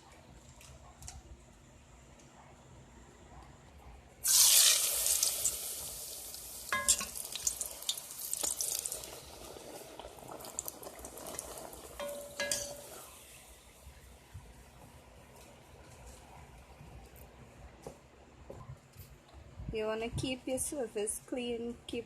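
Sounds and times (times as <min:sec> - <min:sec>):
dough frying in oil: 0:04.2 - 0:14.5.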